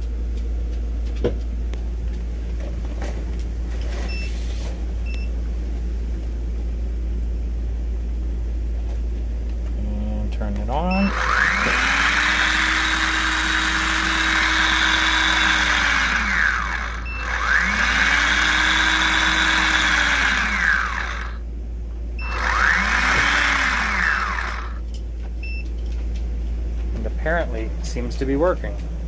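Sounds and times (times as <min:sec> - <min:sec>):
electric motor whining: 0:11.0 - 0:21.4, 0:22.2 - 0:24.8.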